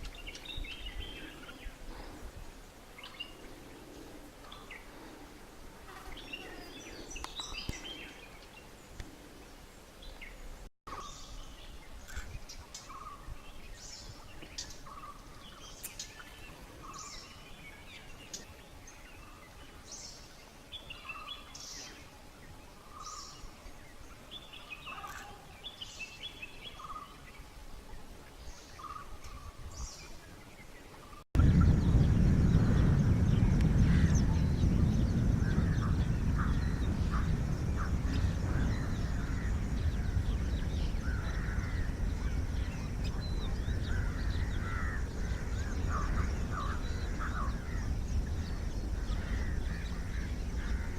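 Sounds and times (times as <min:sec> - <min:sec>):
birds calling: 0:28.5 - 0:50.9.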